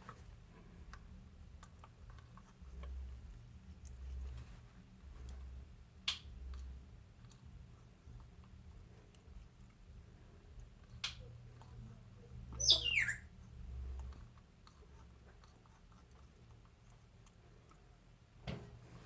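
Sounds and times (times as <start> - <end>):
parrot whistle falling in pitch: 12.6 - 13.2.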